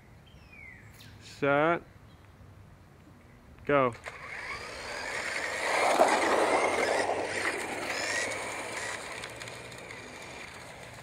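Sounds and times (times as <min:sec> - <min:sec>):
rc car motors whining: 0:04.0 - 0:11.0.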